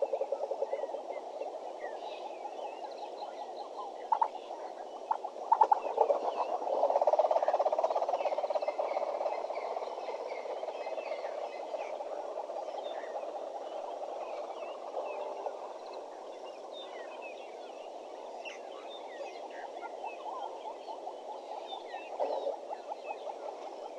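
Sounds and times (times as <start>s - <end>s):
small birds chirping faintly: 0.0s - 23.9s.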